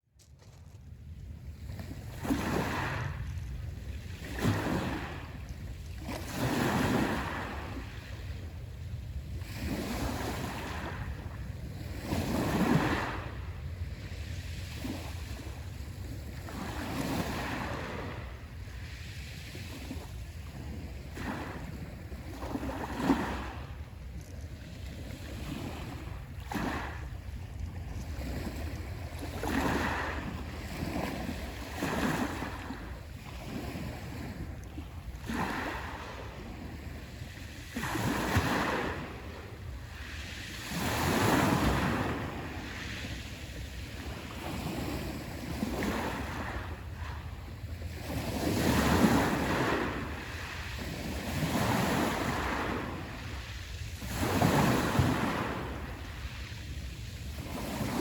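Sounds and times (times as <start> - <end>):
wind rumble on microphone: 0.0 - 58.0
sea waves washing onto shore: 1.5 - 58.0.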